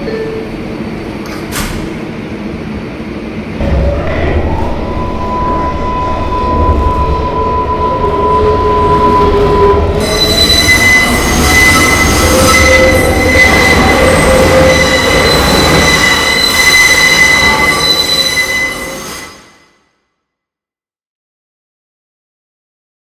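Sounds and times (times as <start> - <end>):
rumble of train cars: 0.0 - 20.0
train wheels squealing: 3.9 - 19.8.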